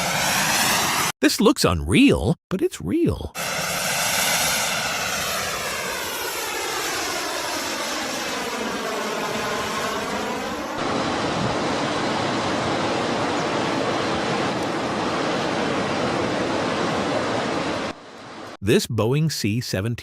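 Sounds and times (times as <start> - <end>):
aircraft engine passing by: 0.0 - 1.1, 3.4 - 17.9.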